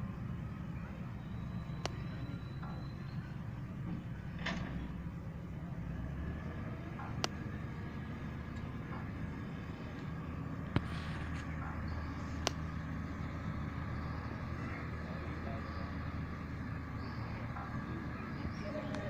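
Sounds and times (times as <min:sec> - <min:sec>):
diesel engine rumbling: 0:00.0 - 0:19.0
sharp clicks: 0:01.8 - 0:02.0, 0:07.0 - 0:07.4, 0:12.4 - 0:12.6.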